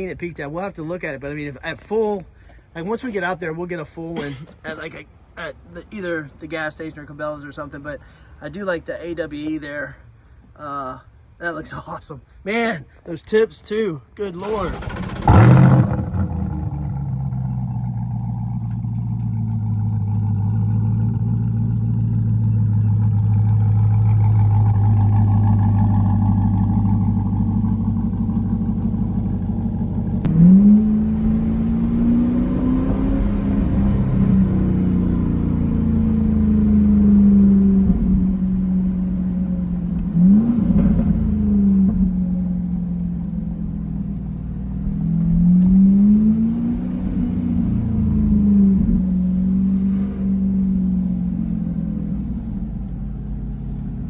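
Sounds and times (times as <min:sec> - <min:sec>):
car engine idling and revving: 0:14.4 - 0:54.0.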